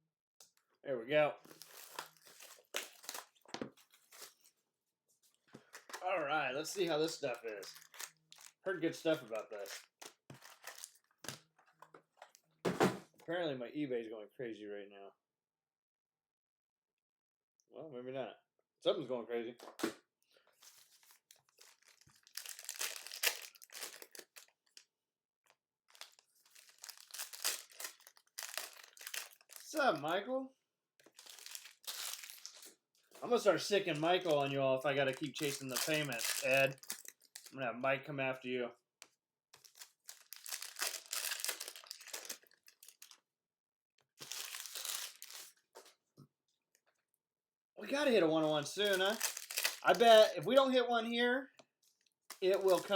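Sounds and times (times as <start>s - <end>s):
wrapper crinkling and tearing: 1.4s - 4.5s, 5.7s - 11.6s, 20.6s - 24.9s, 25.9s - 30.2s, 31.0s - 37.6s, 39.6s - 43.2s, 44.2s - 45.7s, 48.8s - 50.4s, 52.2s - 52.9s.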